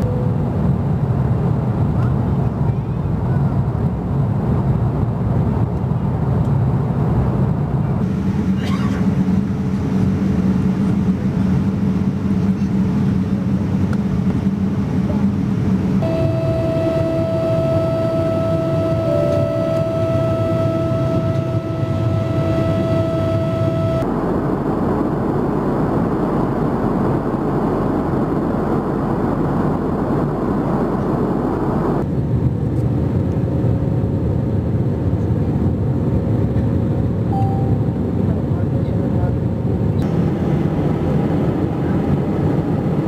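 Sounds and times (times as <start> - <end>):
high jet engine whine: 0.0 - 43.0
jet airliner cabin noise: 0.0 - 43.0
rushing roar: 14.6 - 24.4.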